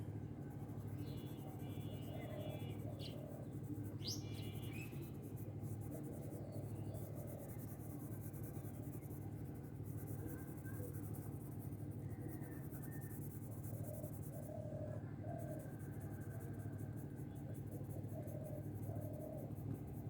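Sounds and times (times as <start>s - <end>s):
steady low hum: 0.0s - 20.0s
colouring strokes scratching paper: 0.5s - 14.4s.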